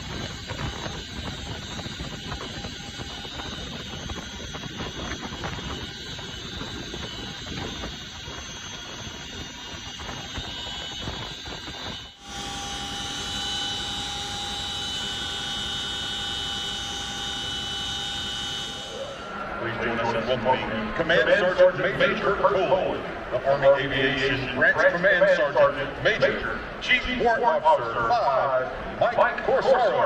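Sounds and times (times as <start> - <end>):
helicopters flying over: 0.0 - 12.8.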